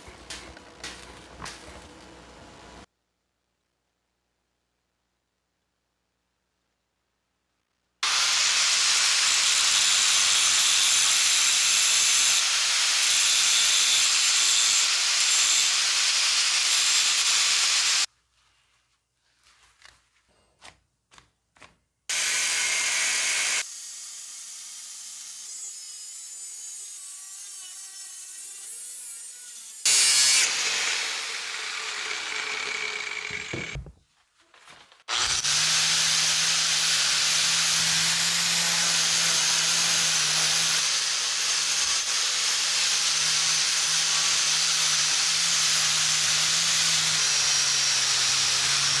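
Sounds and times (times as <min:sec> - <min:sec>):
power tool grinding: 0:08.0 - 0:18.1, 0:22.1 - 0:23.6, 0:29.6 - 0:33.9, 0:35.1 - 0:49.0.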